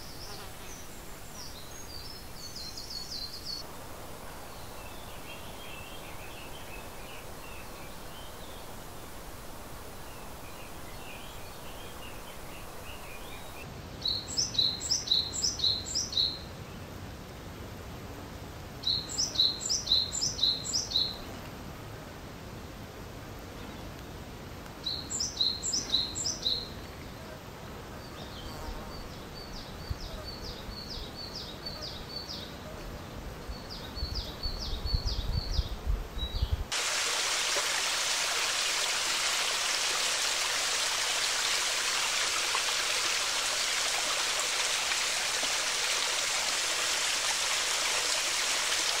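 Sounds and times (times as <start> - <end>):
steady rushing hiss: 0.0 - 13.8, 36.6 - 49.0
songbirds chirping: 0.0 - 17.0, 18.8 - 21.6, 24.8 - 49.0.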